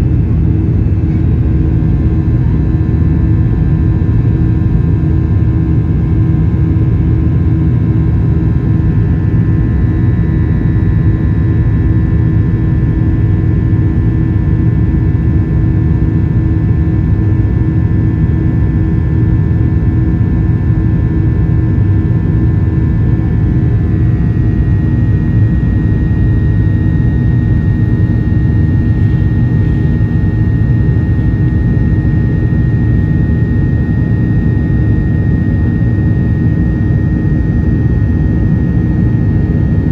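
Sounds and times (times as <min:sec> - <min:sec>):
jet engines rumbling: 0:00.0 - 0:04.3, 0:21.9 - 0:39.9
faint engine whine: 0:00.0 - 0:39.9.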